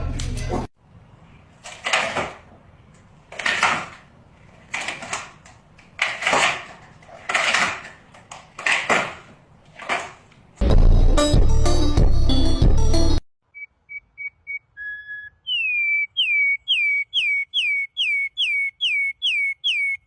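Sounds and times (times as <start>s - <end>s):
loud music with whistle tones: 13.6s - 20.0s.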